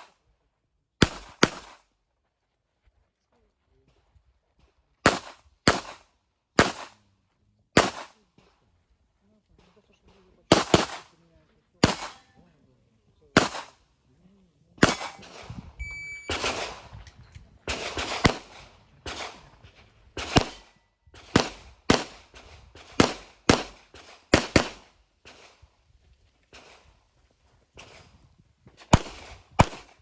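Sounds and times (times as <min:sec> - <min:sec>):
pistol shots: 0:01.0 - 0:01.8, 0:05.0 - 0:07.0, 0:07.7 - 0:08.2, 0:10.5 - 0:11.1, 0:11.8 - 0:12.3, 0:13.4 - 0:13.8, 0:14.8 - 0:15.6, 0:16.3 - 0:17.0, 0:17.6 - 0:19.6, 0:20.2 - 0:25.6, 0:28.8 - 0:30.0
short electronic beep: 0:15.8 - 0:16.4.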